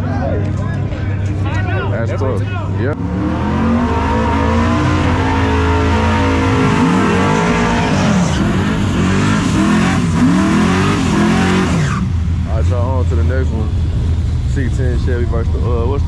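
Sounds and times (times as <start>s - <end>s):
truck engines revving: 0.0s - 16.0s.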